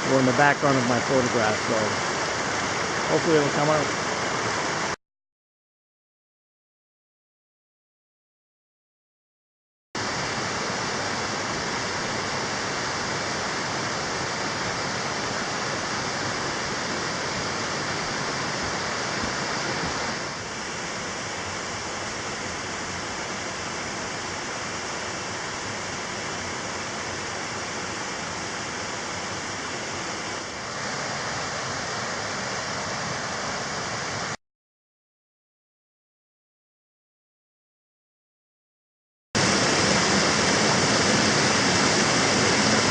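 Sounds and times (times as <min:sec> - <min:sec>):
stream water rushing: 0:00.0 - 0:05.0, 0:10.0 - 0:34.4, 0:39.4 - 0:42.9.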